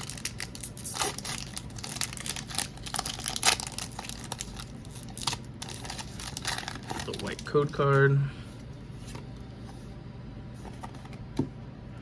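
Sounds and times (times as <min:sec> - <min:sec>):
foil tearing: 0:00.0 - 0:07.4
foil wrapper crinkling: 0:00.0 - 0:08.0.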